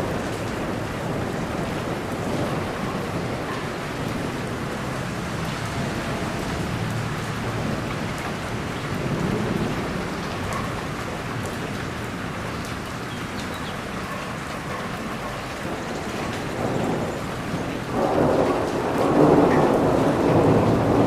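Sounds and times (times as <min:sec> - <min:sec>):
heavy rain falling: 0:00.0 - 0:21.0
low thunder rumble: 0:16.4 - 0:21.0.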